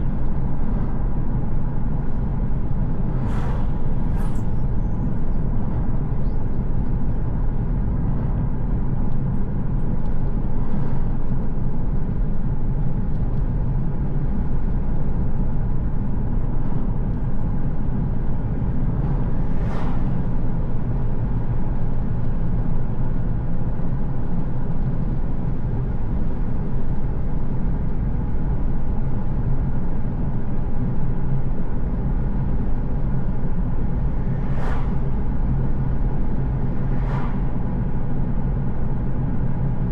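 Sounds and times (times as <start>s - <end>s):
car engine and tyres rumbling: 0.0s - 39.9s
passing whoosh: 3.1s - 4.8s, 19.0s - 20.6s, 34.0s - 38.2s.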